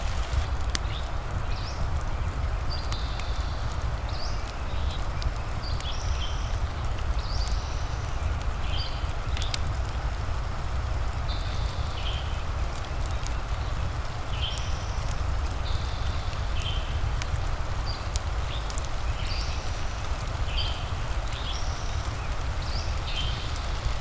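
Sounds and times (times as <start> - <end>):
low rumble: 0.0 - 1.0
rain hissing: 0.0 - 2.7, 7.5 - 24.0
wood fire crackling: 0.0 - 24.0.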